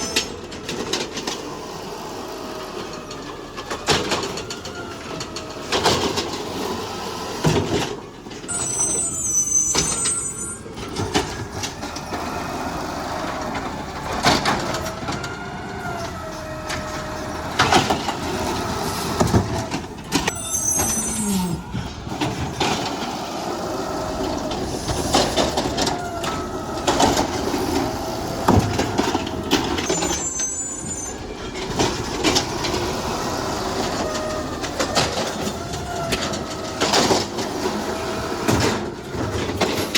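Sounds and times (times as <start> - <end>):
garbage truck engine running: 0.0 - 39.9
hydraulic whine: 0.0 - 39.9
short high squeals: 8.5 - 10.8, 20.3 - 22.3, 29.8 - 31.4.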